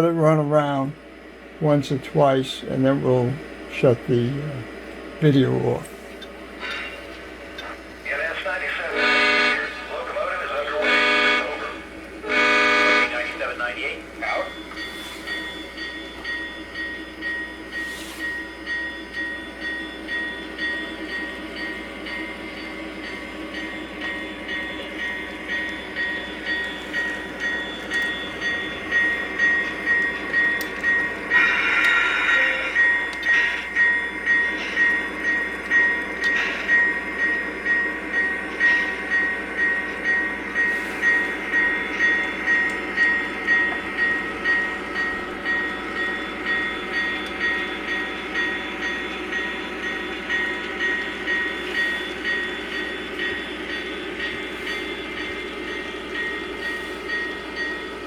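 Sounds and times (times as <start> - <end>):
rhythmic rolling train beat: 0.0 - 58.0
train horn blast: 8.9 - 10.0, 10.8 - 13.4.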